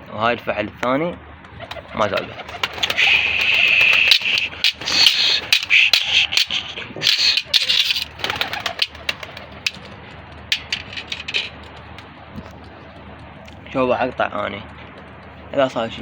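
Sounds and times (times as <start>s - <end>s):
birds rustling and knocking: 0.6s - 16.0s
pigeons cooing: 1.4s - 13.6s.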